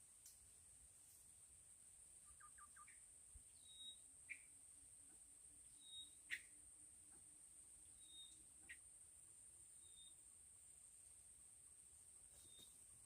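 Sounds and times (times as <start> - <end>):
bird chirps and peeps: 2.3 - 3.0.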